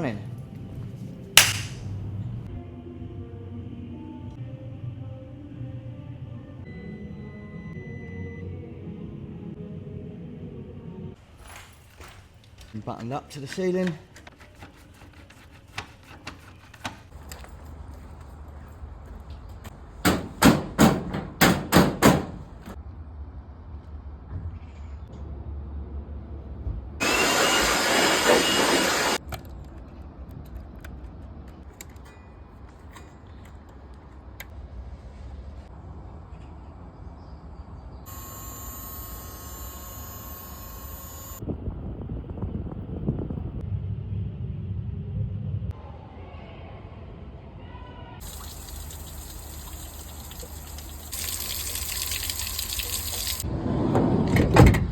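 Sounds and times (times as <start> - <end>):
power tool running: 27.0 - 29.2, 38.1 - 41.4
low steady rumble: 41.5 - 45.8
water gushing: 48.2 - 53.4.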